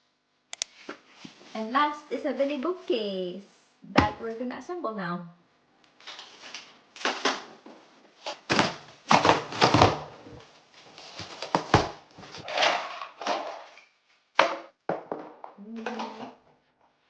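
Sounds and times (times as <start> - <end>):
scraping and rustling: 6.0 - 13.8.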